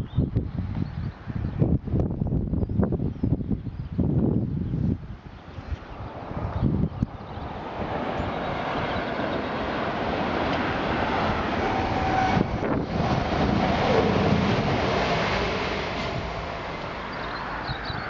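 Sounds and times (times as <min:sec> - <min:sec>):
train passing through station: 0:05.0 - 0:18.0.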